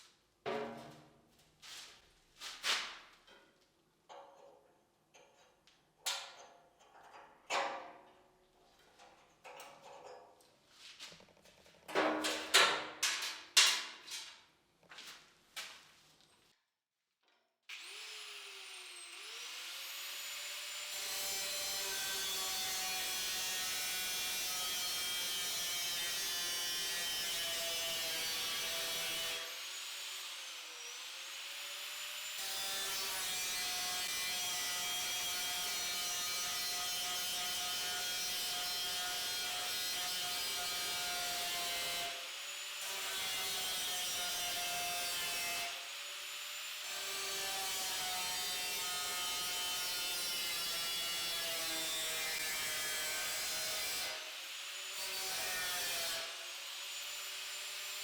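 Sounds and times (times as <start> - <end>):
power tool motor sawing: 17.7 - 58.0.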